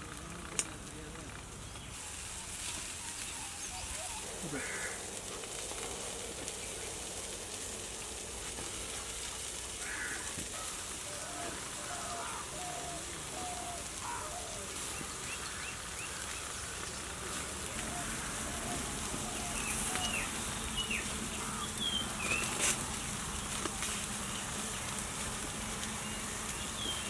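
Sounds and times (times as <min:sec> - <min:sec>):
cooking fire hissing and crackling: 0:00.0 - 0:27.0
short bird calls: 0:02.8 - 0:05.1, 0:09.8 - 0:23.1.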